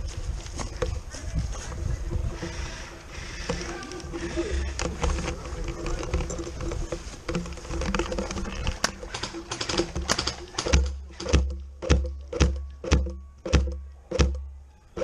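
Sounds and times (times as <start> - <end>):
sharp clicks: 3.0 - 15.0
bass thump: 10.7 - 14.5.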